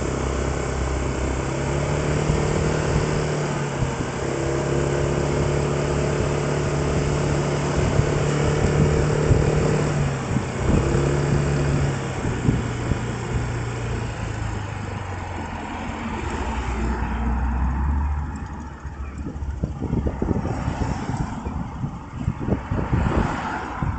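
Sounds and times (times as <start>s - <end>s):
road noise: 0.0s - 23.9s
vehicle engine running: 0.0s - 23.9s.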